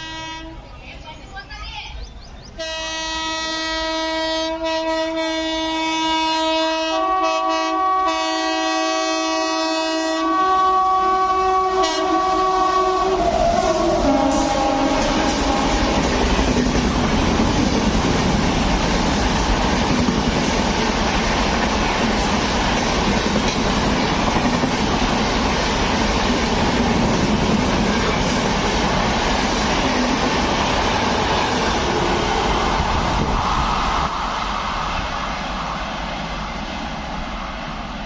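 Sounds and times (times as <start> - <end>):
train wheels rumbling on rails: 9.0 - 38.0.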